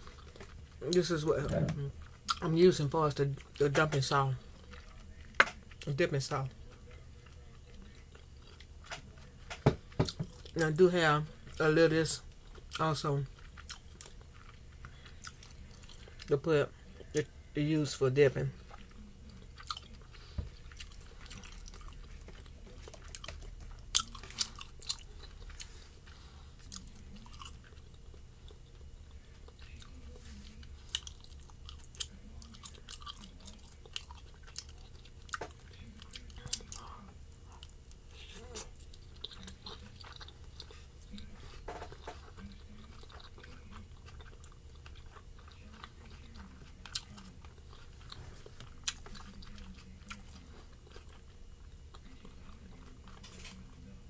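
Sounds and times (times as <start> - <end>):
chewing and wet mouth sounds: 0.0 - 54.0.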